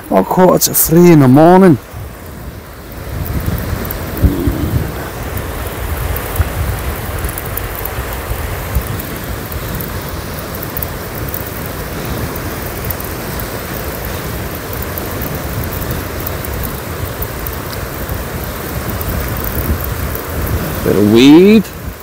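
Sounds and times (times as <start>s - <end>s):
steady rain: 0.0s - 22.0s
low rumble: 4.1s - 5.2s.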